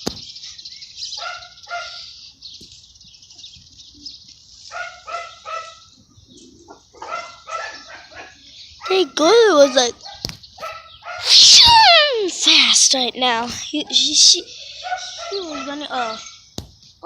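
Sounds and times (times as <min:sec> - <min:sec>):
small dog yapping: 0:07.0 - 0:08.4, 0:09.4 - 0:12.3, 0:14.8 - 0:16.3.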